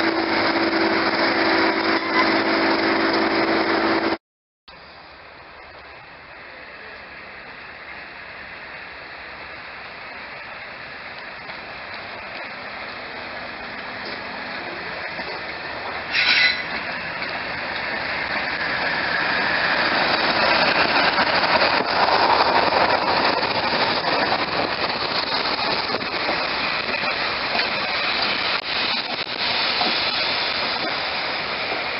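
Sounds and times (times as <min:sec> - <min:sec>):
train running past: 0:00.0 - 0:31.9.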